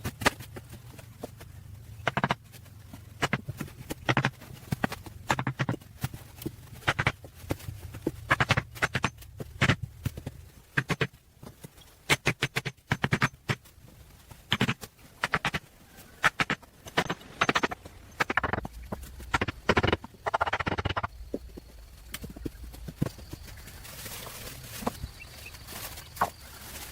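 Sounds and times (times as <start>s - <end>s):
irregular knocks: 16.3s - 23.4s.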